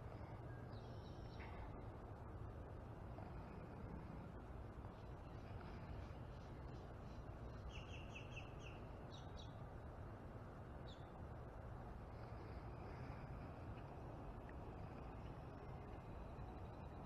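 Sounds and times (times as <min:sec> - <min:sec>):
low outdoor background: 0:00.0 - 0:17.0
bird chirping: 0:07.5 - 0:09.6.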